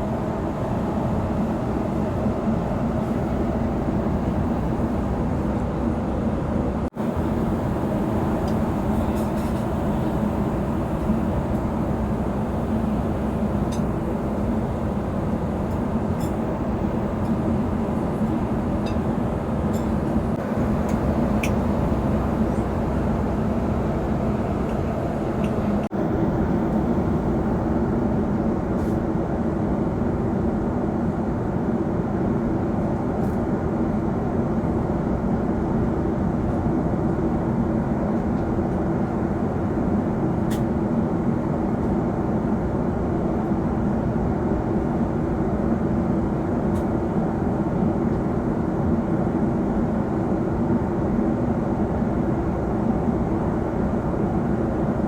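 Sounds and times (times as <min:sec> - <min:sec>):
jet cabin engine roar: 0:00.0 - 0:55.0.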